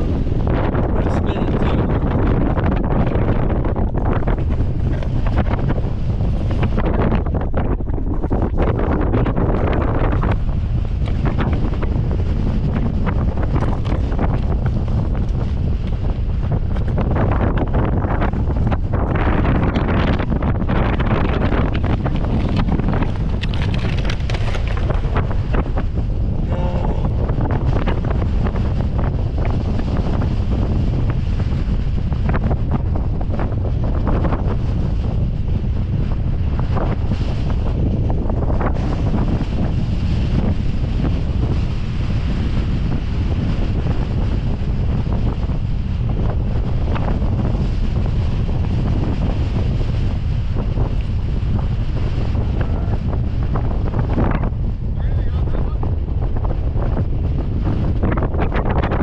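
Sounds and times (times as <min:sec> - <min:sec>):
strong wind buffeting microphone: 0:00.0 - 0:59.0
short rattles and clicks: 0:21.7 - 0:25.1.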